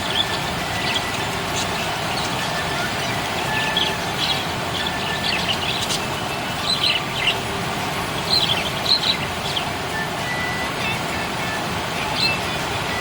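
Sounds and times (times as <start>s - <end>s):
budgerigars chirping: 0.0s - 7.5s, 8.1s - 9.7s
steady background hiss: 0.0s - 13.0s.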